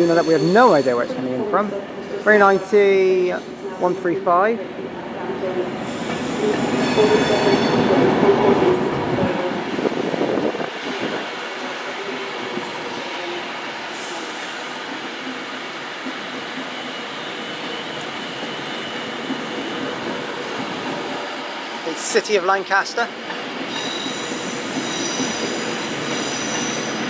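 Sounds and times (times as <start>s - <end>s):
train hum: 4.6s - 27.0s
electric train whine: 5.8s - 27.0s.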